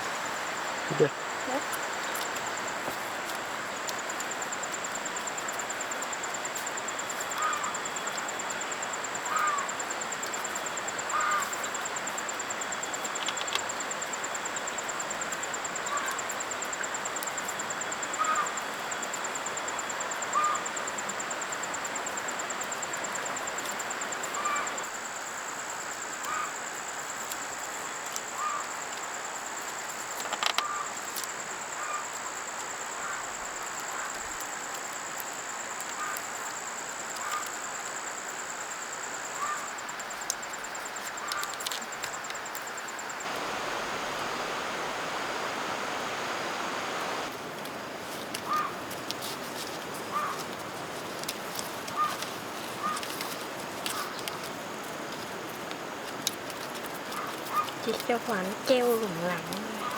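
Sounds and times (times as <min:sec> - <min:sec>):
constant hiss: 0:00.0 - 0:59.9
insect trilling: 0:06.9 - 0:13.7, 0:43.1 - 0:47.3, 0:56.6 - 0:59.9.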